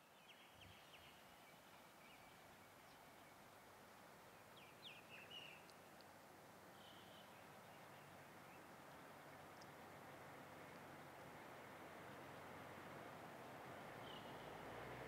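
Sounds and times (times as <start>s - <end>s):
bird chirps: 6.8s - 8.6s, 14.0s - 14.5s.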